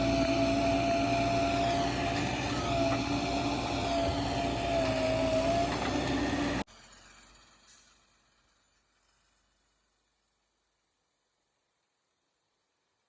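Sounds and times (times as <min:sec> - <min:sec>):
diesel engine running: 0:00.0 - 0:07.6.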